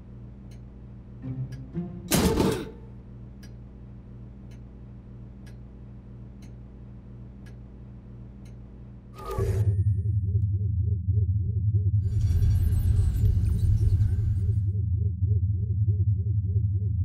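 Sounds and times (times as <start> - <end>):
steady low hum: 0.0 - 17.0
clock ticking: 0.4 - 2.0, 3.3 - 3.7, 4.4 - 6.7, 7.4 - 7.7, 8.3 - 8.7.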